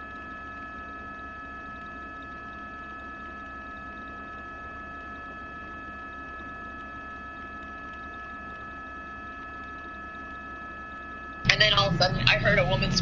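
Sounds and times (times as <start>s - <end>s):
constant high tones: 0.0s - 13.0s
electrical hum: 0.0s - 13.0s.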